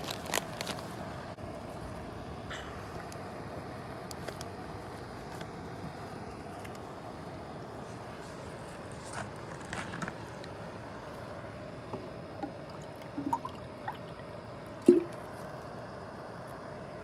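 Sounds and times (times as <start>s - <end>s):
camping stove hissing: 1.2s - 17.0s.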